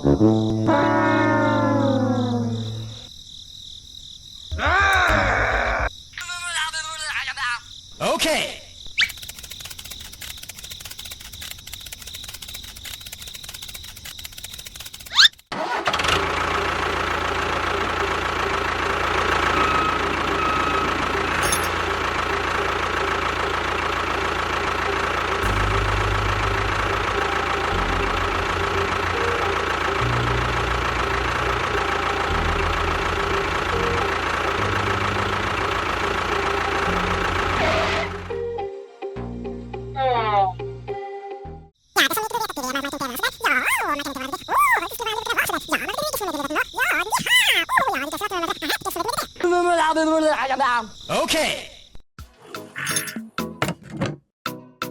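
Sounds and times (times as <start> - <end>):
crickets chirping: 0.0 - 15.4, 16.9 - 38.4, 41.8 - 52.0
small motor whining: 9.1 - 38.3.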